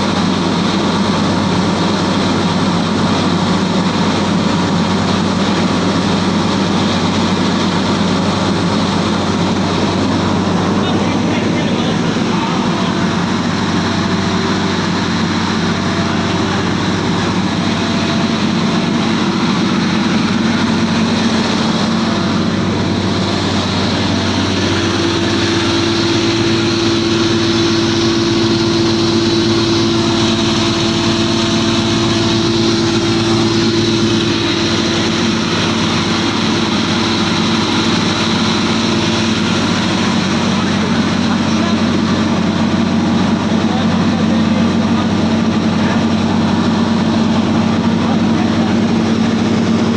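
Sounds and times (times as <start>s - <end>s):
grinder machine hum: 0.0s - 49.9s.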